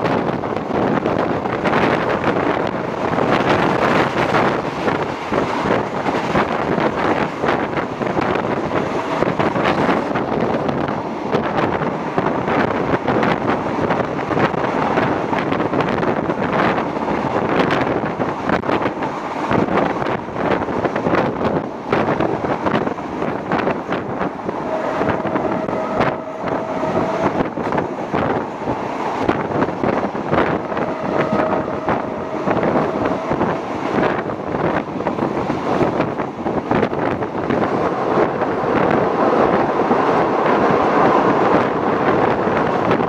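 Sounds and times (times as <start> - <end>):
train knocks: 0.0 - 43.0
train running noise: 0.0 - 43.0
wind rushing over microphone: 0.0 - 43.0.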